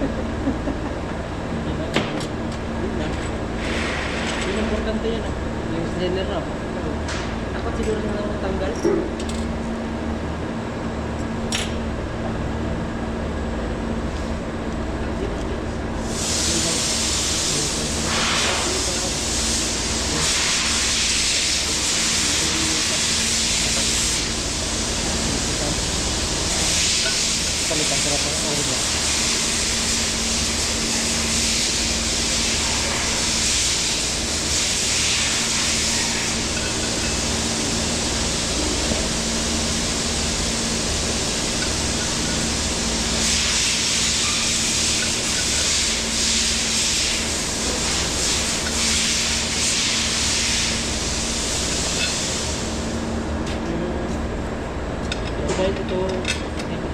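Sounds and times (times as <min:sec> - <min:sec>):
steady machine hum: 0:00.0 - 0:56.9
pressurised hissing spray: 0:16.1 - 0:53.0.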